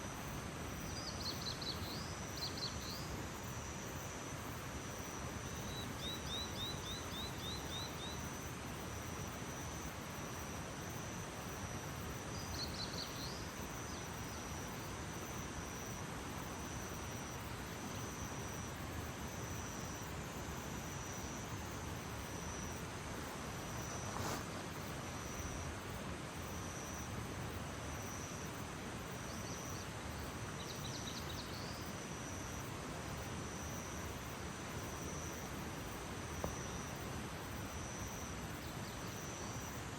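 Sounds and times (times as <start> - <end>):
steady background hiss: 0.0 - 39.9
insect pulsing call: 5.0 - 11.2.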